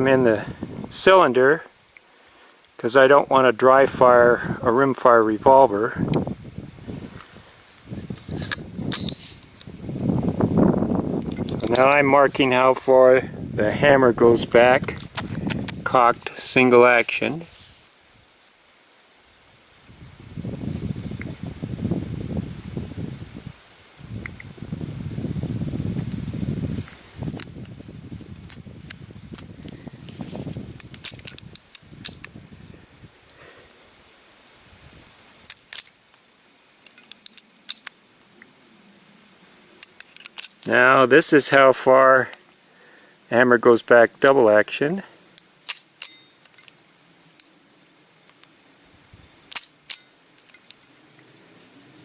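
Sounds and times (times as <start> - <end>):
revolver handling noise: 11.1 - 12.0, 45.4 - 46.8, 49.5 - 51.0.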